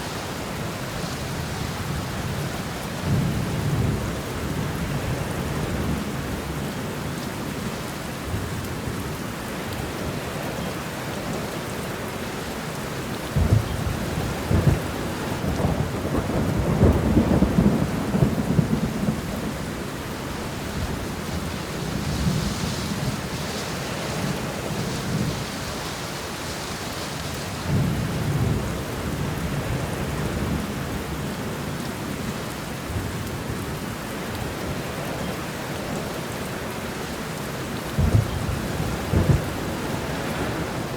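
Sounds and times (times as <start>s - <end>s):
rain pattering: 0.0s - 40.9s
thunder rumbling: 13.3s - 31.3s, 37.8s - 40.9s.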